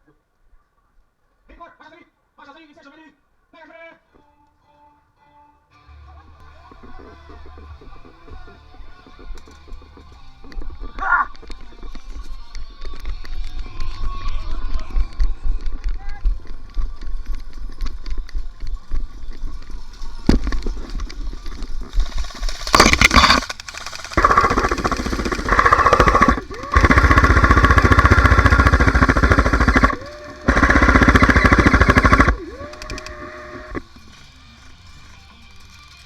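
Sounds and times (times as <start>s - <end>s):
airsoft guns full-auto bursts: 21.9s - 33.9s.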